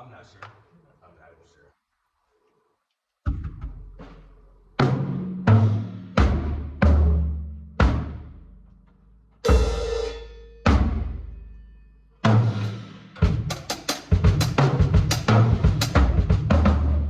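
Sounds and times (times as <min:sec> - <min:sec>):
tom drum hits: 0:03.3 - 0:08.4, 0:09.5 - 0:11.5, 0:12.2 - 0:16.8
cymbal crash: 0:09.5 - 0:13.8.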